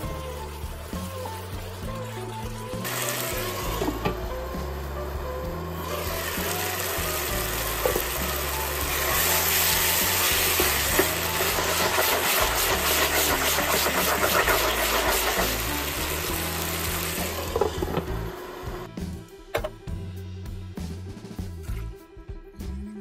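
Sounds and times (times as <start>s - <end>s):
background music: 0.0s - 23.0s
sauce sizzling in a frying pan: 2.8s - 4.9s, 5.5s - 18.9s.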